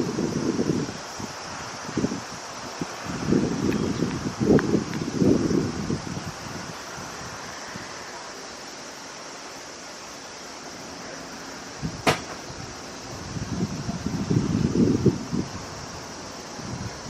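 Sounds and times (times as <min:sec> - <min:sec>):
wind hissing: 0:00.0 - 0:17.0
sharp knock: 0:12.0 - 0:12.4.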